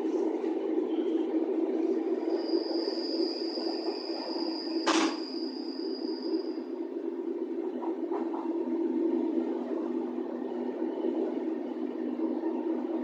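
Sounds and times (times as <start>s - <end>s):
train rumble: 0.0s - 13.0s
high squeal: 0.9s - 6.8s
sharp clack: 4.9s - 5.2s.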